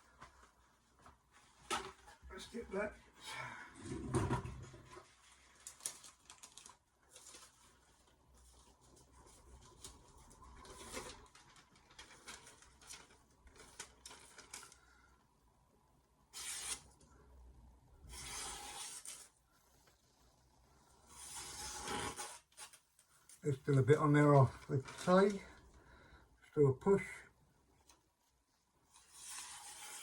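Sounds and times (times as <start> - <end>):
knife cutting through paper: 16.3 - 16.9, 18.1 - 19.3, 21.1 - 22.8, 28.9 - 30.0.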